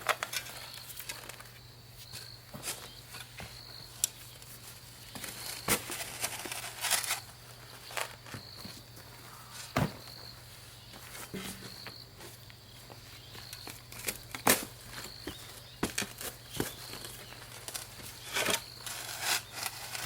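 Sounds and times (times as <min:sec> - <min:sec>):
footsteps: 0:04.4 - 0:18.6
knocks and scrapes of handling: 0:10.9 - 0:12.0, 0:13.6 - 0:20.0.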